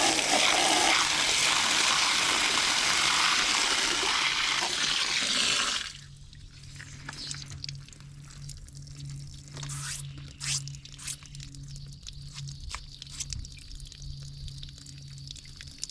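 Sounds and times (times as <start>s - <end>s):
hose spraying water: 0.0s - 5.9s, 9.6s - 11.2s
low steady hum: 0.0s - 15.9s
water dripping and trickling: 0.0s - 15.9s.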